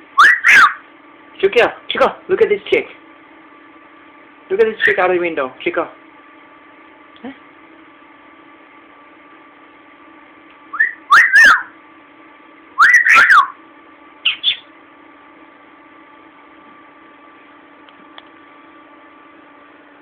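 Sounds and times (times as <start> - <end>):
budgie chirp: 0.2 - 0.8, 10.7 - 11.7, 12.8 - 13.6, 14.2 - 14.7
budgie wolf whistles: 0.2 - 0.8, 10.7 - 11.7, 12.8 - 13.6, 14.3 - 14.7.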